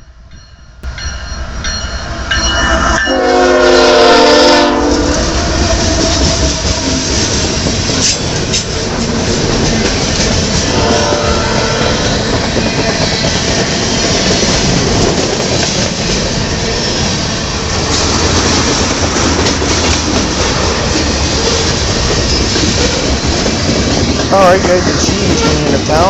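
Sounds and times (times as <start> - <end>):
freight train rumbling past: 0.0 - 26.0
locomotive chord air horn: 3.0 - 7.2, 10.7 - 12.0, 24.7 - 26.0.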